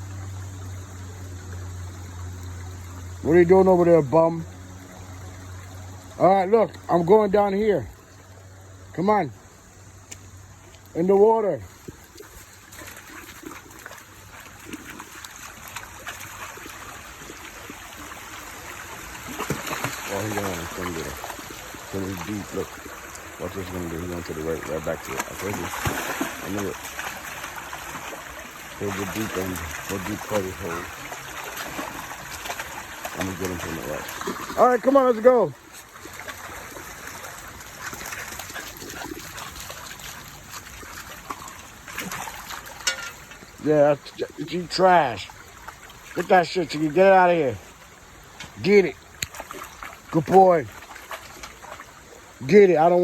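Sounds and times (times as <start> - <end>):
flowing creek water: 0.0 - 53.0
dog splashing in water: 11.8 - 43.4, 49.3 - 52.1.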